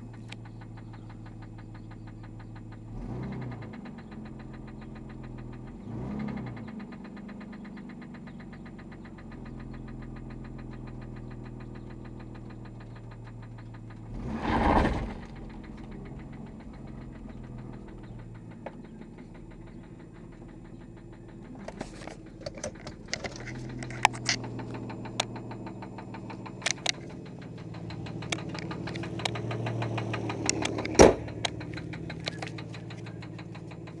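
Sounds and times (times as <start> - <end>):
car engine knocking: 0.0 - 34.0
sharp clicks: 15.1 - 34.0.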